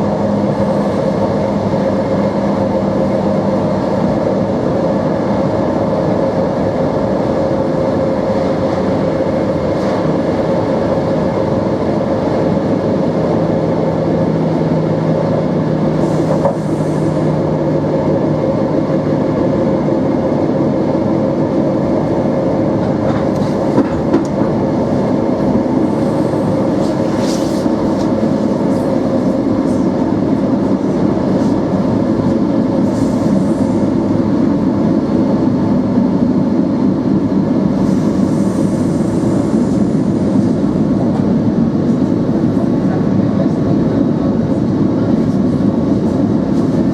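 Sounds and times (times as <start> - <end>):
train motors humming: 0.0 - 46.9
train wheels clickety-clack: 16.0 - 17.3, 22.7 - 24.6, 40.3 - 43.7.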